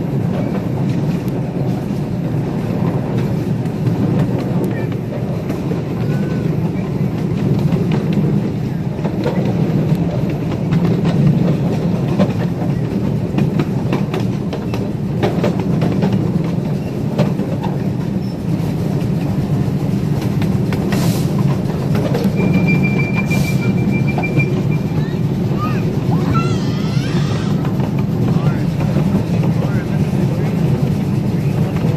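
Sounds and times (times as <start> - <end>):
train rumble: 0.0 - 31.9
wheels clacking over rail joints: 0.0 - 31.9
high squeal: 22.3 - 25.1.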